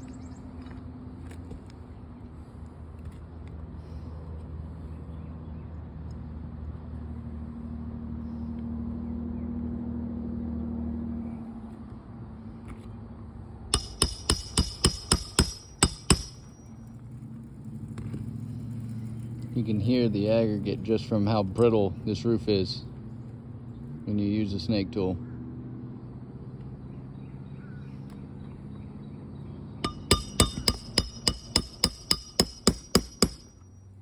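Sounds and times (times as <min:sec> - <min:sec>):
hammer striking metal tool: 0:13.7 - 0:16.6, 0:29.8 - 0:33.7.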